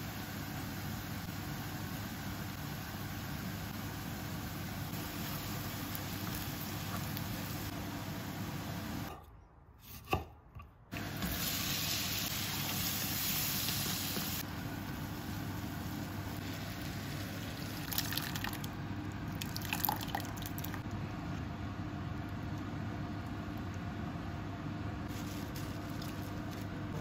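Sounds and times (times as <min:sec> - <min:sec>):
food sizzling in hot oil: 0:11.0 - 0:18.7.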